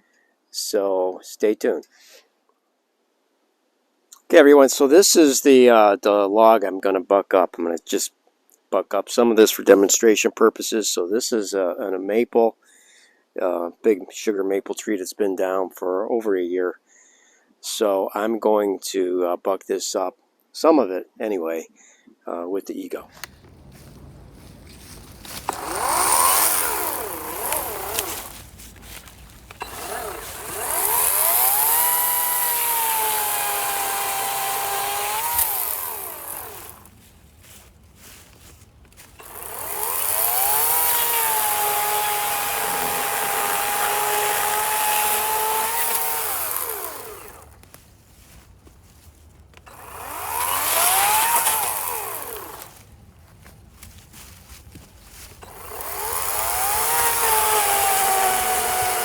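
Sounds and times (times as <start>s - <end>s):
chainsaw cutting log: 23.1s - 59.0s.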